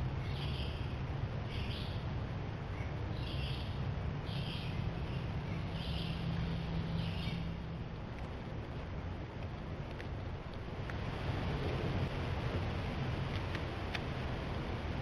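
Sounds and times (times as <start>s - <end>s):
steady low hum: 0.0s - 15.0s
bird calling: 2.7s - 7.7s.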